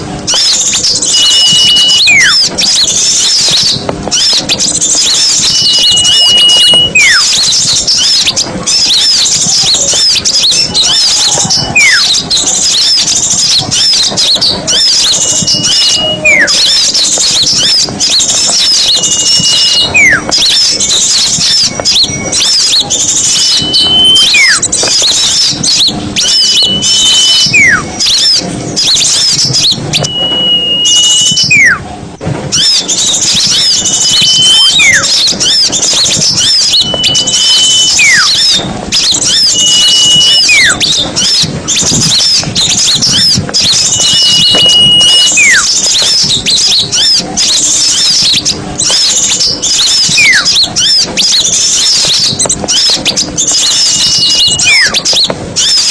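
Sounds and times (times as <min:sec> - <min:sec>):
small songbirds chattering: 0:00.0 - 0:31.7, 0:32.5 - 0:55.9
high falling whistle: 0:25.2 - 0:31.8, 0:32.5 - 0:47.0.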